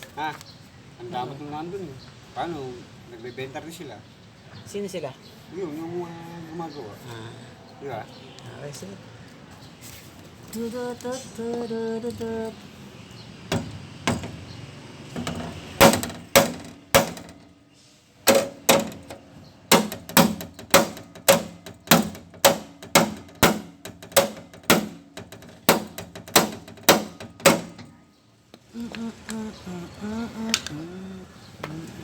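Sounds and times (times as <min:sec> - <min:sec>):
hammer beating sheet metal: 0:15.1 - 0:17.4, 0:18.3 - 0:27.9.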